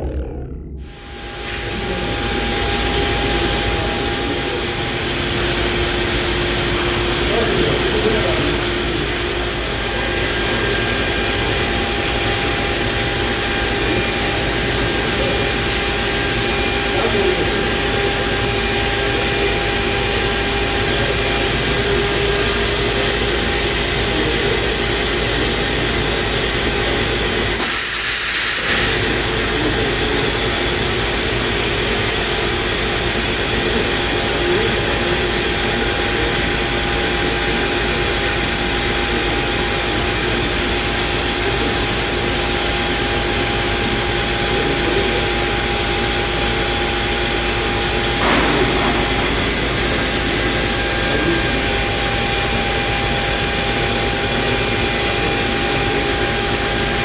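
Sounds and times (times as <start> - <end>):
air hiss: 27.6 - 29.1.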